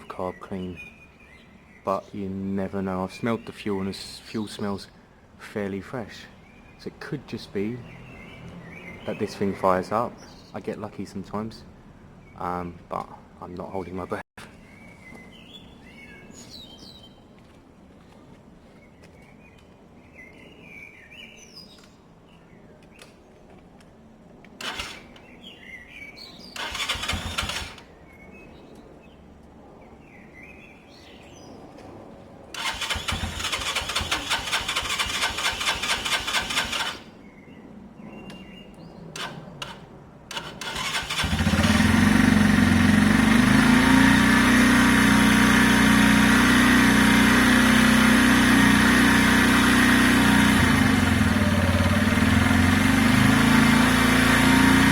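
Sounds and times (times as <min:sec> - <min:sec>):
motorcycle electric starter cranking: 0:24.6 - 0:25.2, 0:26.6 - 0:27.9, 0:32.6 - 0:37.1, 0:39.2 - 0:54.9
motorcycle engine idling: 0:32.6 - 0:37.1, 0:40.3 - 0:54.9.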